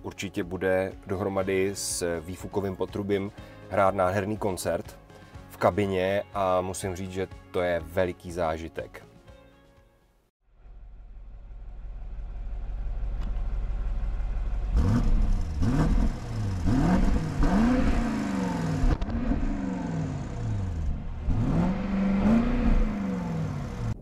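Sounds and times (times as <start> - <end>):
car engine idling and revving: 10.5 - 24.0
exhaust crackles: 10.6 - 24.0.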